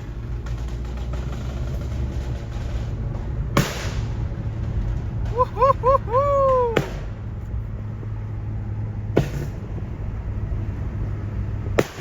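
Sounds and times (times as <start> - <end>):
car engine and road noise: 0.0 - 5.4, 6.8 - 12.0
falling pitched call: 5.3 - 6.8.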